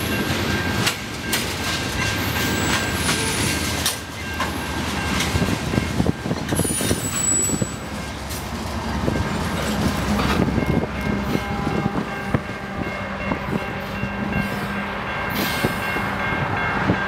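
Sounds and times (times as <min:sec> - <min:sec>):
train wheels rumbling on rail: 0:00.0 - 0:17.0
high wheel squeals: 0:06.5 - 0:08.1.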